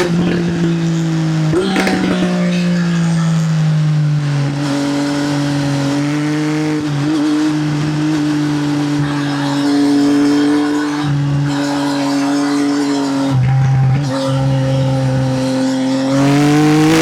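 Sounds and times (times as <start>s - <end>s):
motorcycle engine while riding: 0.0s - 17.0s.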